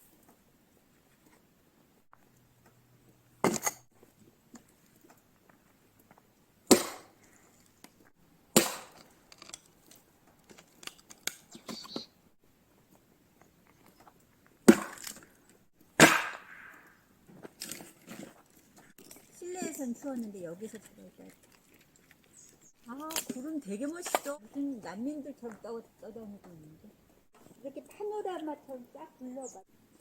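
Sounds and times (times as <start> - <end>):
axe striking firewood: 3.4 - 3.8, 6.7 - 7.2, 8.5 - 9.5, 14.6 - 15.2, 16.0 - 17.0.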